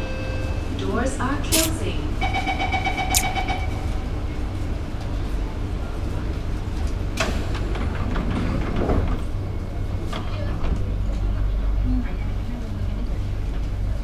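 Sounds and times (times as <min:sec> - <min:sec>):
train rumble: 0:00.0 - 0:14.0
pulsing door warning tone: 0:02.2 - 0:04.1.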